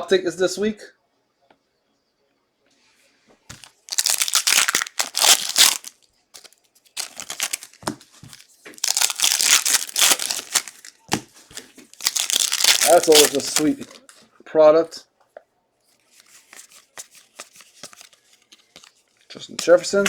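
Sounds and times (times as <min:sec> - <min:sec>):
plastic packaging tearing and crinkling: 0:03.5 - 0:14.2.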